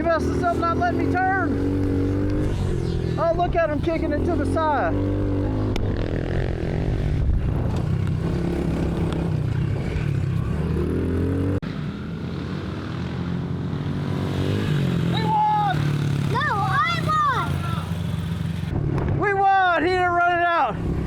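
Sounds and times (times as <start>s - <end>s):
dirt bike engine revving: 0.0s - 18.8s, 20.7s - 21.0s.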